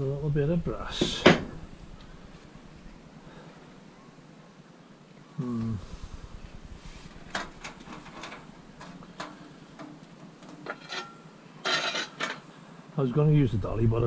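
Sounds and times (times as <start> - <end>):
scrap metal knocking and clinking: 7.3 - 12.5.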